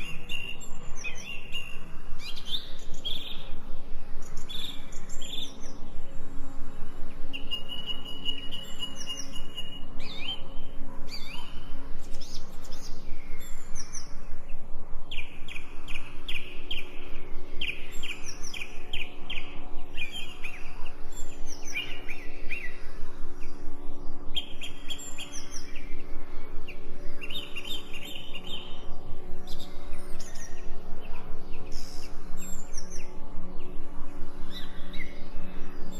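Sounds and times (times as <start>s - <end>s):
faint low drone: 0.0s - 35.9s
songbirds chirping and trilling: 0.0s - 35.9s.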